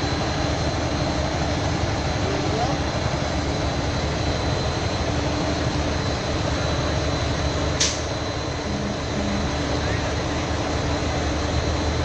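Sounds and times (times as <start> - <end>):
heavy vehicle engine rumbling: 6.6 - 12.0.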